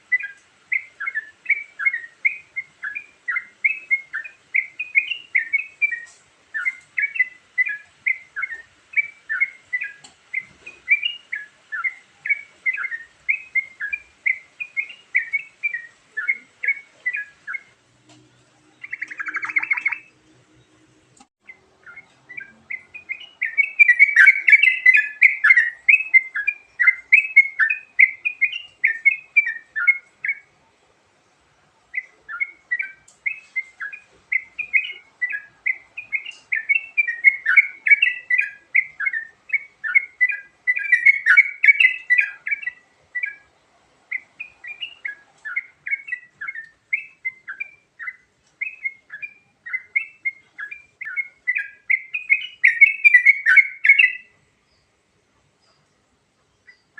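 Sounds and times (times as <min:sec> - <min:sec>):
bubbly bird chirping: 0:18.8 - 0:20.1.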